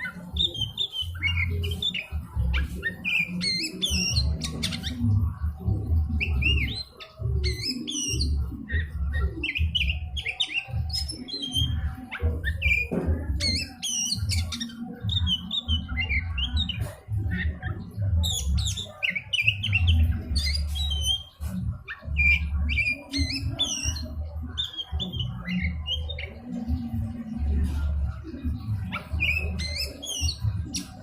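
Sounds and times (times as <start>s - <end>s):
bird singing whistles and chirps: 0.0s - 31.0s.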